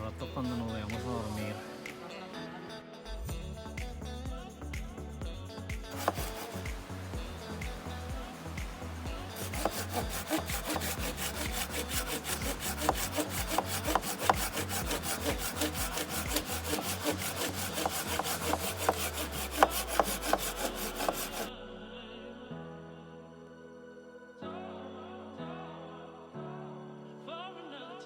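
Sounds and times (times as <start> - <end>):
background music with bass line: 3.1 - 21.5
saw cutting wood: 5.9 - 21.5.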